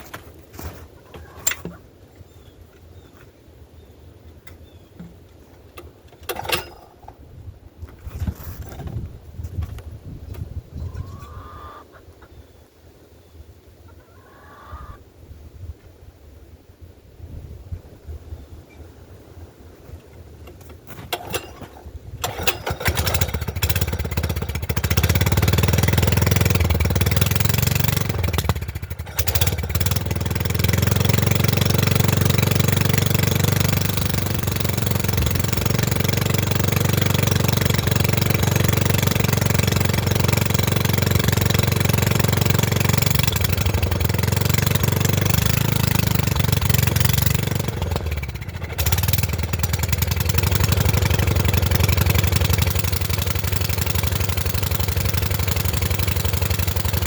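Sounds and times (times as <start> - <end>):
small engine starting and running: 5.8 - 7.2, 20.6 - 57.0.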